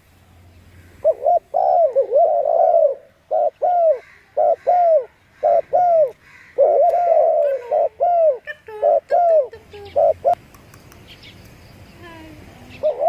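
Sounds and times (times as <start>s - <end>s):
doves cooing: 0.7s - 10.4s, 12.6s - 13.0s.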